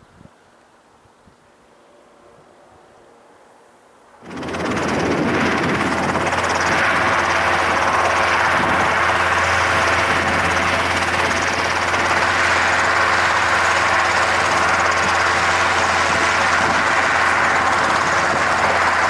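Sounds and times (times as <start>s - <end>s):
turboprop engine running: 4.2s - 19.0s.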